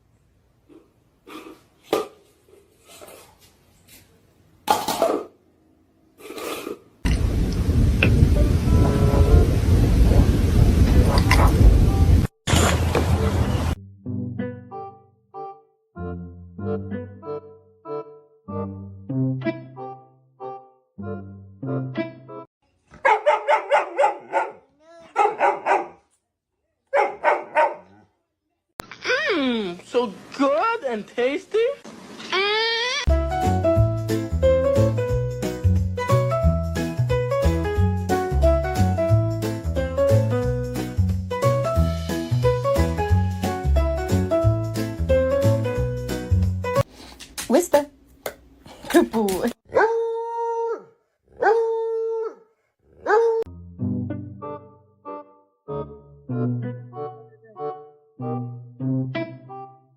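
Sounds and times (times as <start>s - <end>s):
dog barking: 22.9s - 26.1s, 26.9s - 28.1s, 53.0s - 53.5s.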